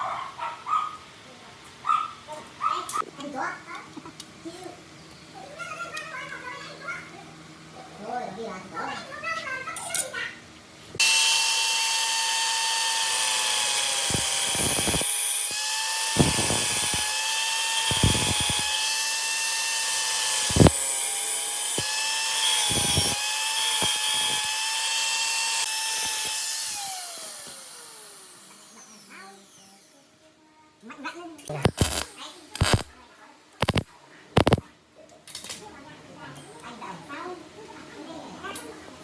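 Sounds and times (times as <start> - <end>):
power tool motor whine: 11.0 - 30.1, 31.6 - 32.9, 33.6 - 33.8, 34.4 - 34.6.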